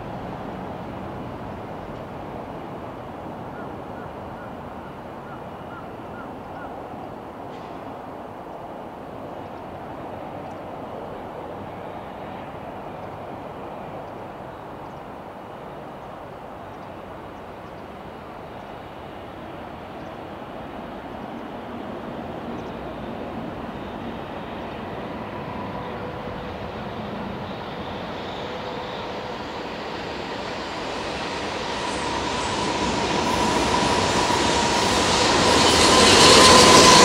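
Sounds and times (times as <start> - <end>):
electric train rumble: 0.0 - 37.0
faint high whine: 9.3 - 37.0.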